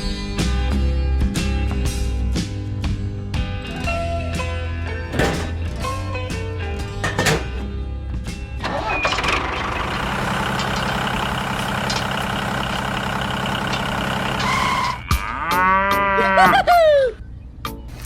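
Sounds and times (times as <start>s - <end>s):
cow mooing: 15.0s - 16.5s.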